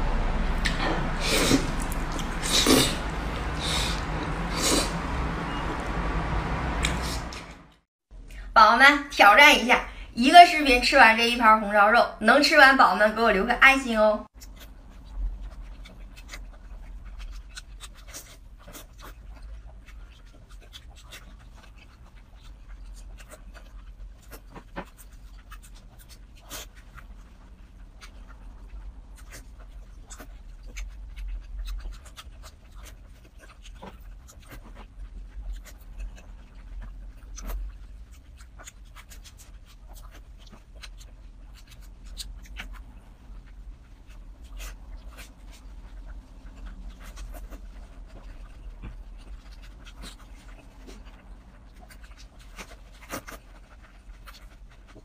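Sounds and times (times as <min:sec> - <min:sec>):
steady low hum: 0:00.0 - 0:08.6
wet chewing and lip-smacking: 0:01.5 - 0:04.8, 0:14.3 - 0:55.0.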